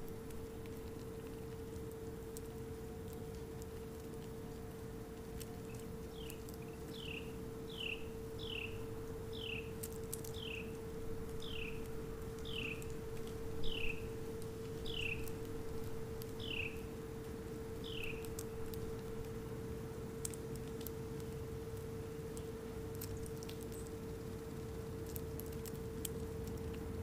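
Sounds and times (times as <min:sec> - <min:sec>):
songbird whistling: 0:05.7 - 0:09.7, 0:11.4 - 0:11.8, 0:12.4 - 0:12.8, 0:13.6 - 0:14.1, 0:14.8 - 0:15.3, 0:16.4 - 0:16.8, 0:17.8 - 0:18.2.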